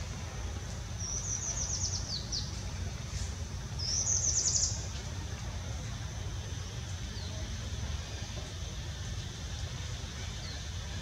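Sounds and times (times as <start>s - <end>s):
small bird chirping song: 1.0s - 2.6s, 3.8s - 5.0s.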